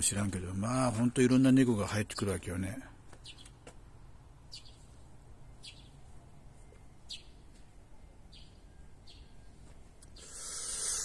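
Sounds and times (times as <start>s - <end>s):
bird chirps: 3.2s - 3.7s, 4.4s - 11.0s.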